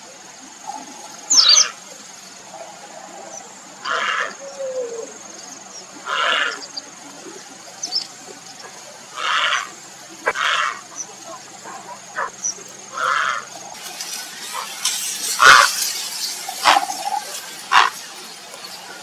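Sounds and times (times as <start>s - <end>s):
heron harsh rasping calls: 3.8s - 4.3s, 9.2s - 10.8s, 12.9s - 13.5s, 15.4s - 15.8s, 16.6s - 18.0s.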